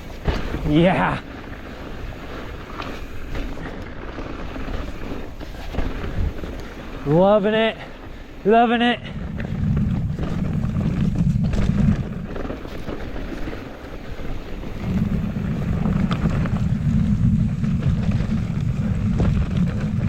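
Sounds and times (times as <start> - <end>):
wind buffeting microphone: 0.0 - 20.0
bike clicks and knocks: 9.2 - 20.0.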